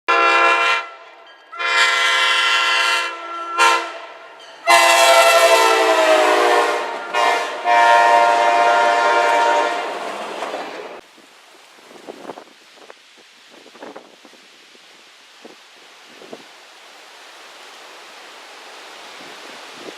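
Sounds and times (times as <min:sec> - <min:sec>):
locomotive air horn blasts: 0:00.1 - 0:10.0.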